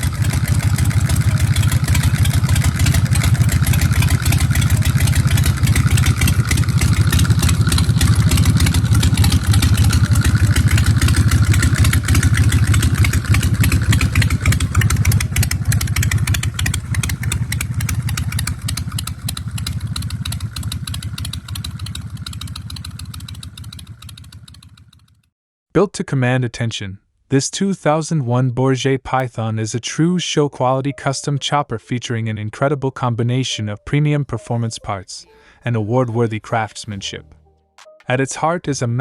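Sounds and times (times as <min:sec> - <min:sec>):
motorcycle engine running: 0:00.0 - 0:25.3.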